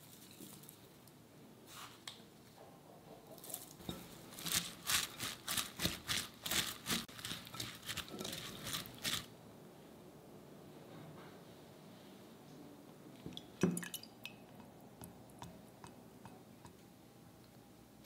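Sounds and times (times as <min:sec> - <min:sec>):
cabbage crunching in a bowl: 0:03.5 - 0:09.3.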